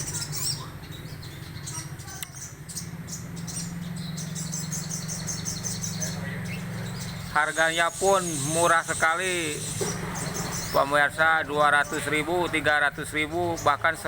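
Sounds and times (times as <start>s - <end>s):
songbird chirping: 0.0s - 14.0s.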